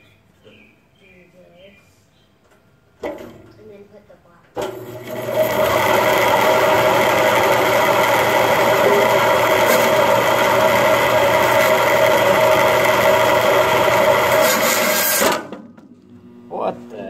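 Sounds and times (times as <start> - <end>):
band saw humming: 4.6 - 17.0.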